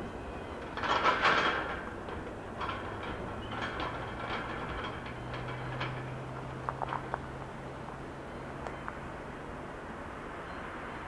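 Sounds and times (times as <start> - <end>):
freight train wheels clacking: 0.0 - 8.1
steady low hum: 0.0 - 10.5.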